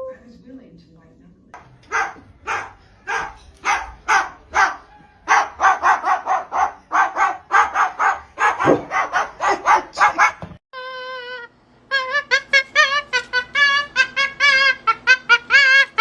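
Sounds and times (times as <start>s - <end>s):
short sharp barks: 1.9s - 10.6s.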